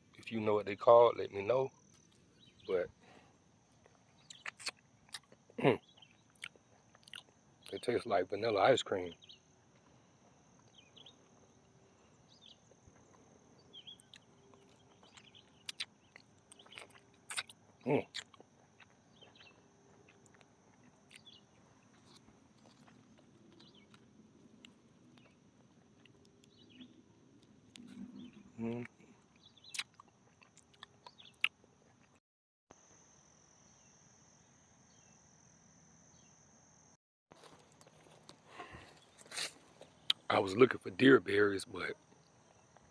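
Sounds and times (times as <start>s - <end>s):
insects droning: 0.0s - 32.1s, 32.7s - 42.9s
faint bird chirps: 1.1s - 3.3s, 4.1s - 22.2s, 26.0s - 27.0s, 27.7s - 30.0s.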